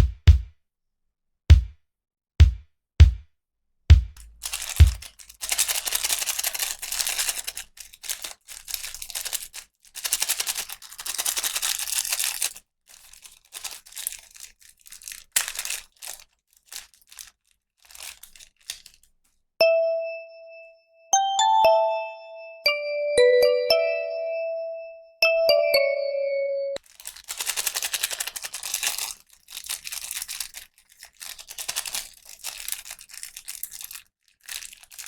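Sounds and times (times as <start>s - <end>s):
plastic packaging tearing and crinkling: 4.2s - 19.3s, 26.8s - 35.0s
short chime notes: 19.6s - 26.8s.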